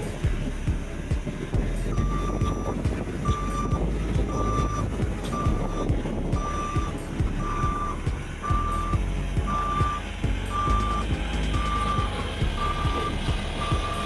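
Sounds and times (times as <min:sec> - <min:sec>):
diesel engine running: 0:00.0 - 0:14.0
reversing alarm beeping: 0:01.9 - 0:14.0.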